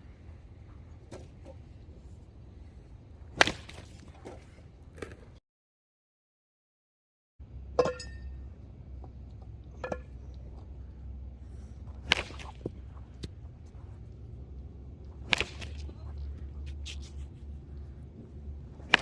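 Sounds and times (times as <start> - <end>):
baseball bat cracking ball: 3.3 - 4.4, 11.9 - 13.5, 15.0 - 19.0
steady low rumble: 7.4 - 19.0.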